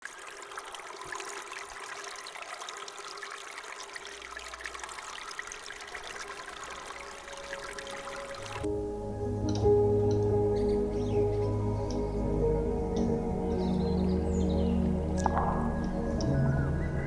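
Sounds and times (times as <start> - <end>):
creek water trickling: 0.0 - 17.0
soft ambient music: 6.5 - 17.0.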